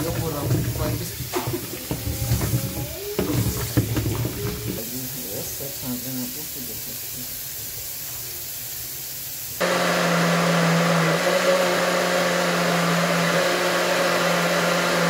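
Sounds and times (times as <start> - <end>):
electric blender motor running: 9.6 - 15.0.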